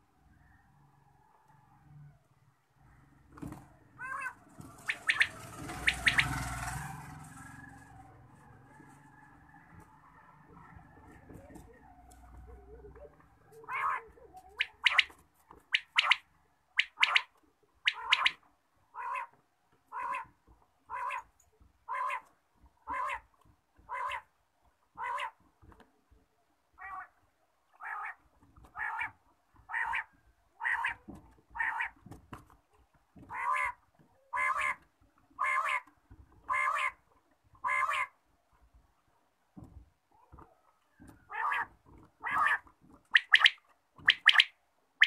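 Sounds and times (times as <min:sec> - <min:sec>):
bird calling: 0:04.0 - 0:06.7, 0:13.6 - 0:18.4, 0:41.3 - 0:44.6.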